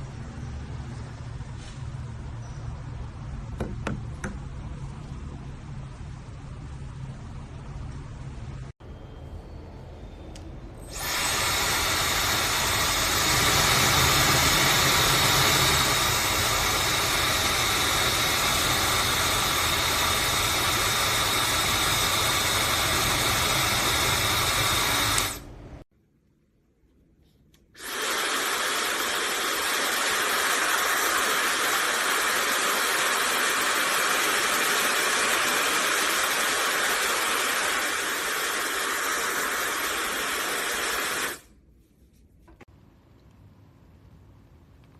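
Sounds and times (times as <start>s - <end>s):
hair dryer blowing: 10.9s - 25.5s, 27.8s - 41.5s.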